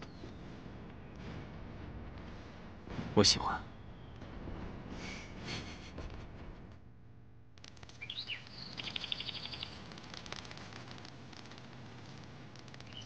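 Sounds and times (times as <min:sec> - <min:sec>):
bird chirps: 0:08.0 - 0:09.8.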